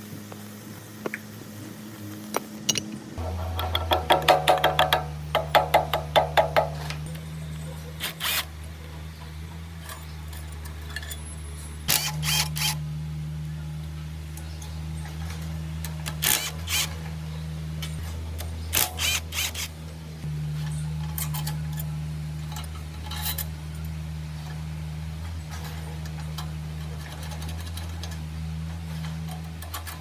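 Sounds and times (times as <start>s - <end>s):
motor humming: 0.0s - 30.0s
sharp clicks and knocks: 2.3s - 7.1s.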